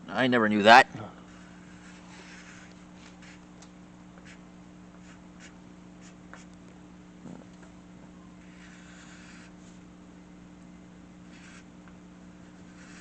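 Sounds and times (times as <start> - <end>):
low electrical hum: 0.0 - 13.0
drawing tool scratching paper: 1.3 - 3.4, 8.4 - 9.5, 11.2 - 11.7, 12.5 - 13.0.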